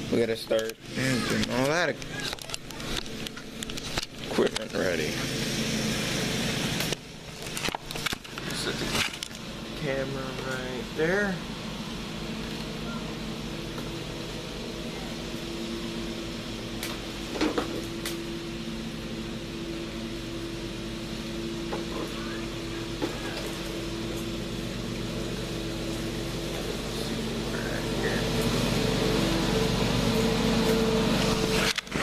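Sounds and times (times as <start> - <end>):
steady machine hum: 0.0 - 32.0.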